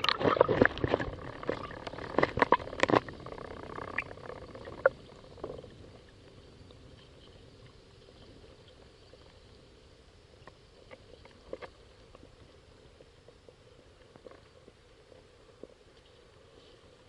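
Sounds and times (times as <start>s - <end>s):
water slapping kayak hull: 0.0s - 5.0s.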